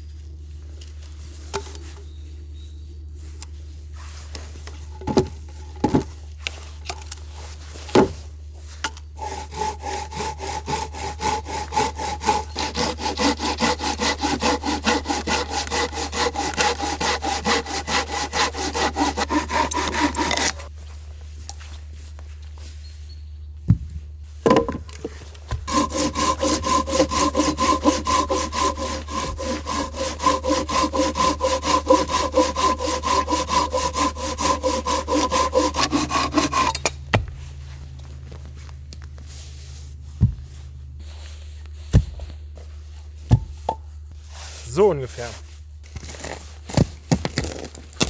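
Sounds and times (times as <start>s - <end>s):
hand saw cutting log: 9.2s - 20.7s, 25.5s - 37.0s, 46.0s - 47.8s
wood knocks: 24.4s - 24.9s.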